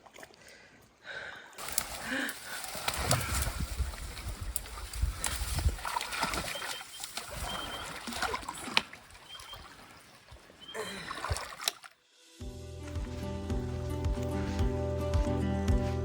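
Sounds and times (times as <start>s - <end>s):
twigs snapping: 1.6s - 7.4s
footsteps: 1.6s - 7.7s
scrub crackling and rustling: 1.6s - 10.6s.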